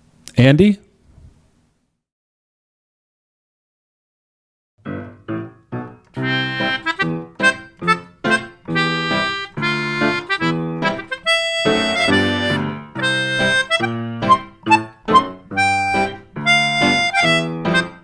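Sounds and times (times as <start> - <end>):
bouncy instrumental tune: 5.8 - 18.0.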